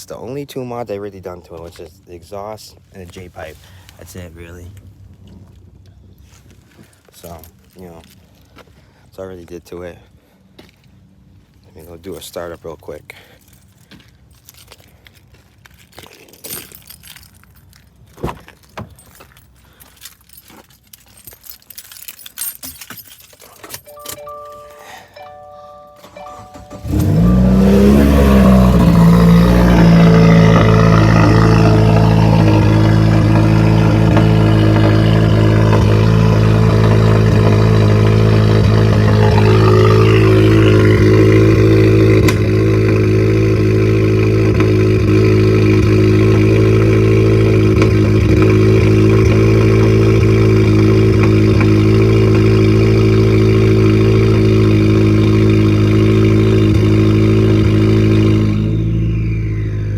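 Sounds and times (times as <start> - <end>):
car engine starting and idling: 21.2 - 59.9.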